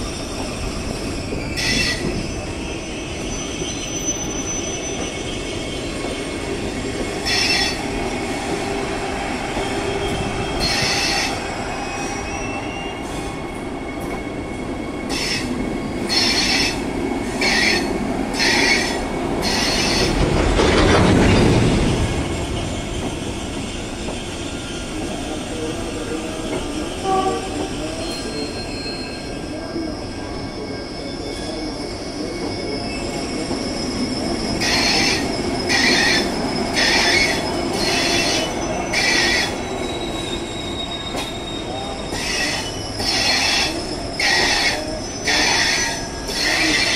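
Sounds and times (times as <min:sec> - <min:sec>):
high-pitched squeals from running gear: 0:00.0 - 0:06.6, 0:07.2 - 0:07.9, 0:09.5 - 0:20.2, 0:27.6 - 0:46.9
train running rumble: 0:04.9 - 0:29.0.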